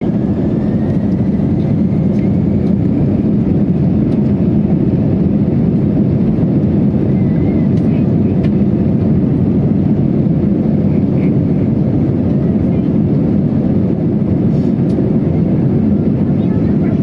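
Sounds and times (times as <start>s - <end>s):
jet engines low rumble: 0.0s - 17.0s.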